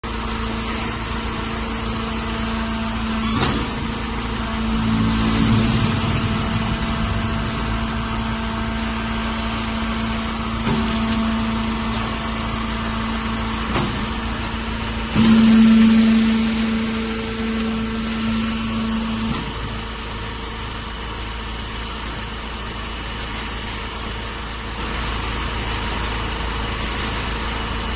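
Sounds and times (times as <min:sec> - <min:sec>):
baler mechanical hum: 0:00.1 - 0:21.6
burst of machine noise: 0:01.9 - 0:20.5.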